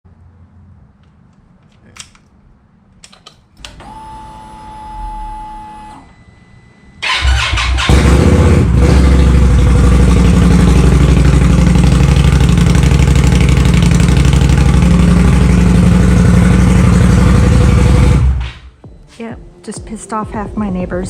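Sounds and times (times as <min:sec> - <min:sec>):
electric starter whirring: 0:03.2 - 0:08.4
motorcycle engine idling loudly: 0:07.8 - 0:18.2.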